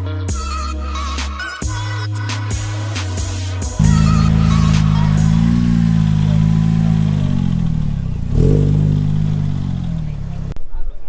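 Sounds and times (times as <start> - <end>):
background music: 0.0 - 7.8
car engine accelerating: 3.8 - 10.6.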